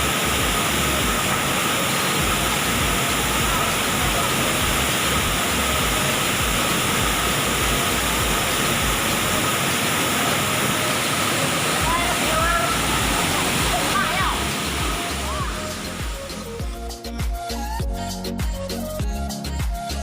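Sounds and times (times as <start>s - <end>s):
waterfall roaring: 0.0s - 16.6s.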